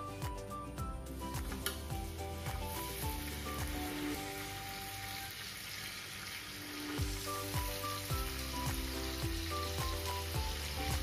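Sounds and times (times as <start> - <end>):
background music with low beat: 0.0 - 4.7, 7.0 - 11.0
skewers sizzling in hot oil: 1.0 - 11.0.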